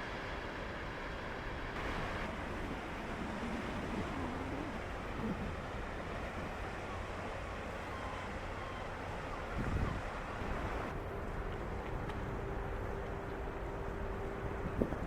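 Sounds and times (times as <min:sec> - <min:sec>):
low engine hum: 0:00.0 - 0:15.0
rushing water: 0:00.0 - 0:15.0
wind noise on microphone: 0:09.5 - 0:10.1, 0:14.5 - 0:15.0.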